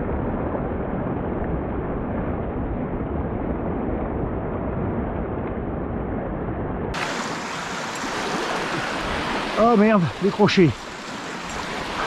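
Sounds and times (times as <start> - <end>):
wind rumble on microphone: 0.0 - 12.0
flowing river water: 6.9 - 12.0.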